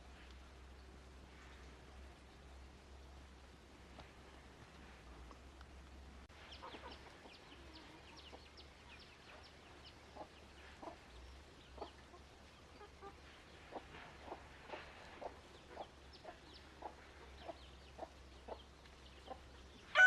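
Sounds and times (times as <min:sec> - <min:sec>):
chicks peeping: 0:06.4 - 0:19.5
chickens clucking: 0:06.4 - 0:19.6.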